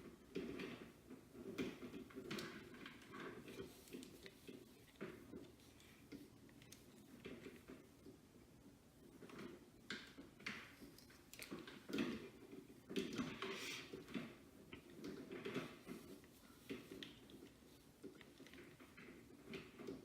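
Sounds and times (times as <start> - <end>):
hair rustling: 2.8 - 7.9.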